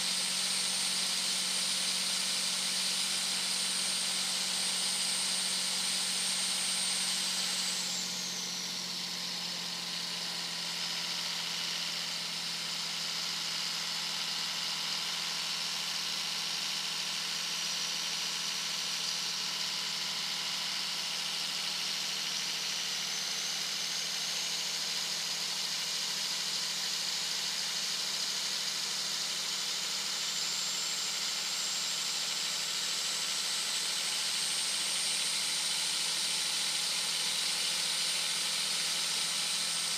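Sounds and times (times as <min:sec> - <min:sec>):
diesel engine drone: 0:07.0 - 0:12.4.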